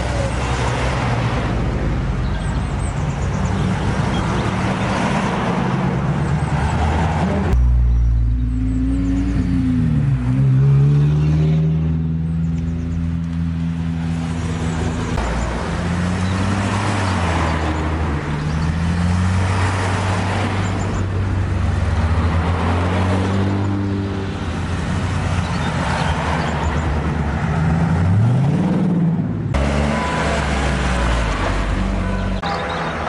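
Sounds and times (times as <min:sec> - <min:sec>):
engine revving: 0:06.5 - 0:20.6, 0:27.6 - 0:32.0.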